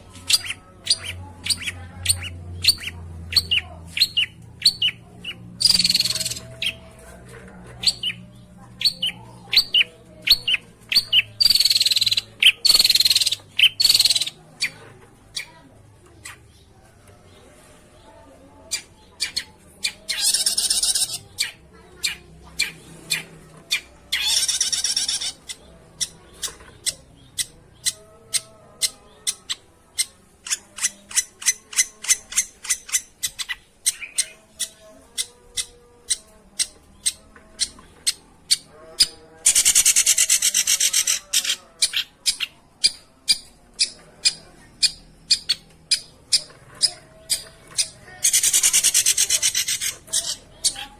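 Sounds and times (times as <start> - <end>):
bird harsh rasping scolds: 24.2 - 25.6.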